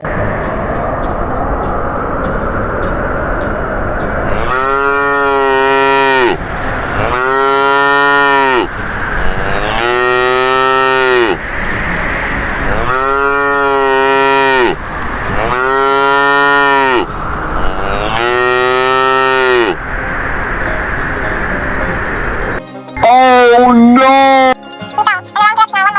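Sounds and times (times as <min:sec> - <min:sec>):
cattle mooing: 0:04.2 - 0:19.9.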